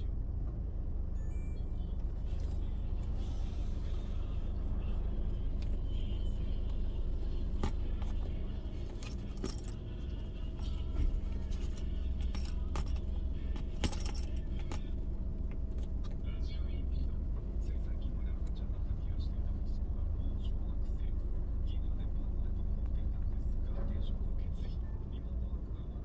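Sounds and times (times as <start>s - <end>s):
steady low hum: 1.6s - 21.2s
metallic clicks and jingles: 6.7s - 15.8s.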